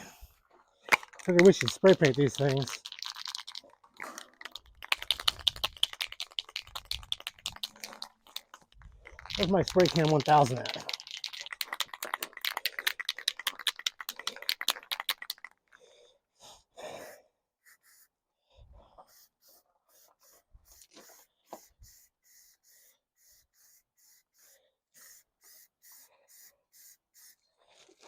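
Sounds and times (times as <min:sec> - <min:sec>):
spray can mixing ball rattling: 0:00.9 - 0:15.8, 0:19.1 - 0:27.4
spray paint hissing bursts: 0:04.6 - 0:15.4, 0:17.6 - 0:18.1, 0:19.0 - 0:27.4.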